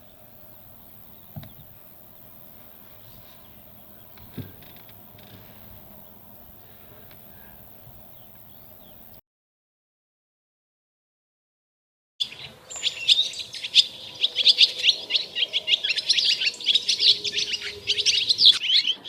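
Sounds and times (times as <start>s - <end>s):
soft low thumps: 0.0s - 9.2s.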